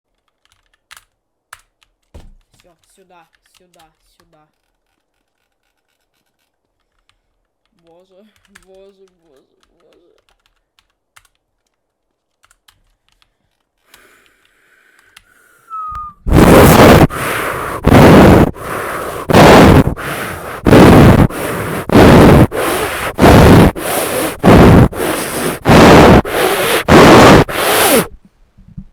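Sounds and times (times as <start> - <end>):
wind puffs on microphone: 16.2 - 28.8.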